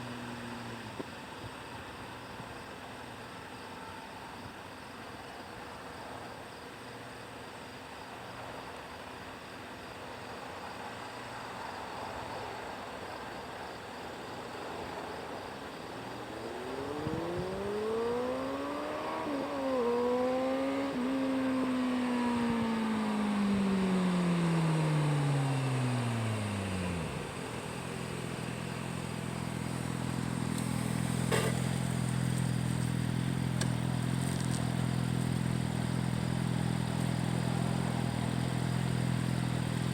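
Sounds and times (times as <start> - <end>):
motorcycle engine revving and idling: 16.0 - 39.9.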